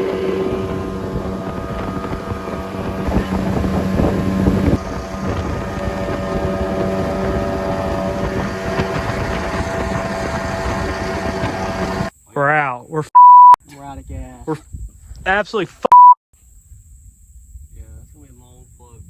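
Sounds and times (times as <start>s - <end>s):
outboard motor running: 0.0s - 12.1s
wind buffeting microphone: 0.0s - 12.1s, 13.8s - 15.4s.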